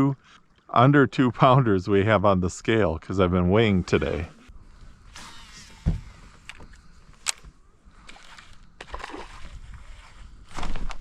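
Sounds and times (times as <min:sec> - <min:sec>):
water splashing around kayak: 0:08.0 - 0:10.1.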